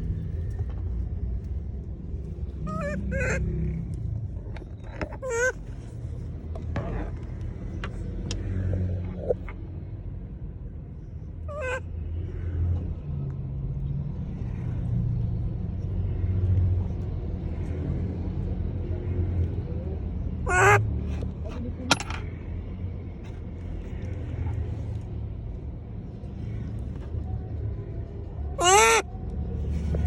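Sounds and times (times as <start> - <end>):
monkey high-pitched call: 2.7 - 3.5, 5.1 - 5.6, 11.5 - 11.8, 20.5 - 20.8, 28.6 - 29.1.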